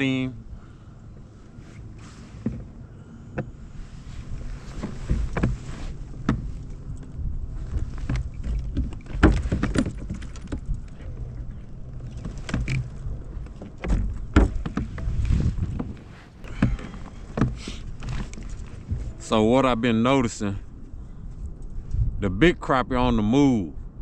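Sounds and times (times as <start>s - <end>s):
steady low rumble: 0.0s - 24.0s
fishing gear knocking in kayak: 7.7s - 10.9s, 12.1s - 19.1s.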